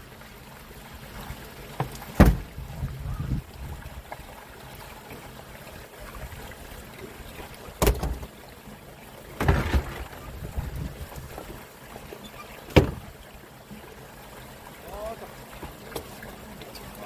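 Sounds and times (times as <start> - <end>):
short rattle: 9.4 - 10.7.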